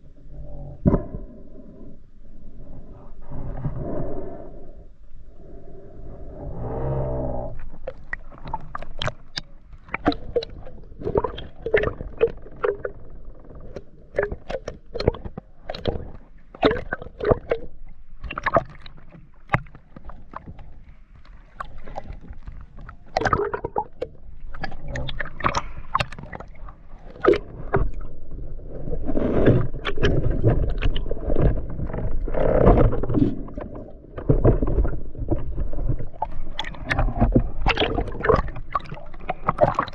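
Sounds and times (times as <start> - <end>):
water gurgling and sloshing: 0.0 - 39.9.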